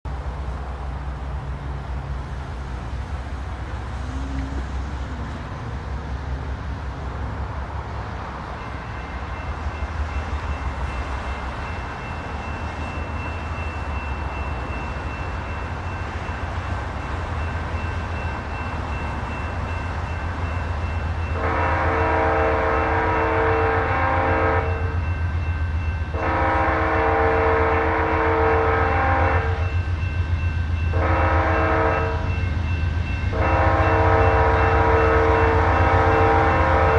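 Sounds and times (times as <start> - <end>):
locomotive engines rumbling: 0.1 - 36.9
train air horn blasts: 21.4 - 25.0, 26.1 - 29.7, 30.9 - 32.3, 33.3 - 36.9.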